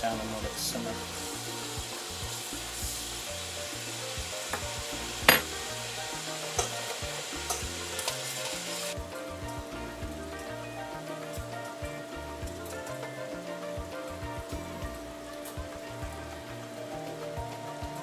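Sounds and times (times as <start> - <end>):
octopus sizzling in oil: 0.3 - 9.0.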